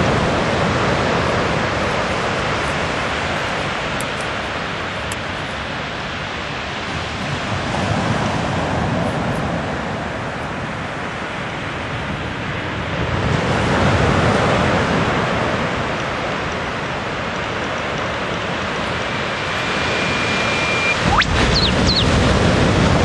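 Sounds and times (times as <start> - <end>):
bird whistle note: 19.4 - 22.2.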